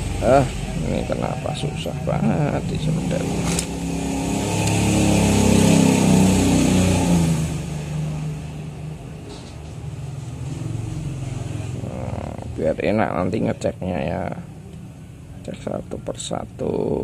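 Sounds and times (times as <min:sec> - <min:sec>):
vehicle engine passing by: 0:00.0 - 0:13.2.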